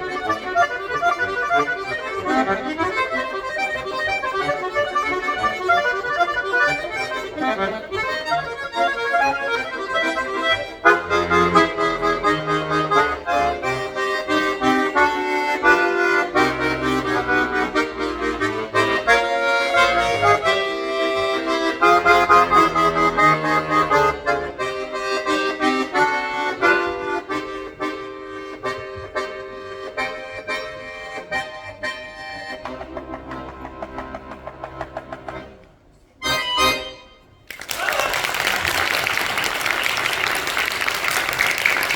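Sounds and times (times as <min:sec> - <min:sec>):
solo accordion playing: 0:00.0 - 0:37.4.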